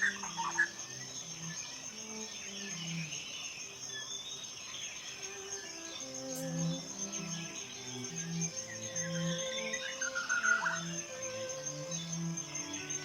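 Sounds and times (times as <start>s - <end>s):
insects trilling: 0.0s - 13.0s
low ambient music: 5.2s - 13.0s.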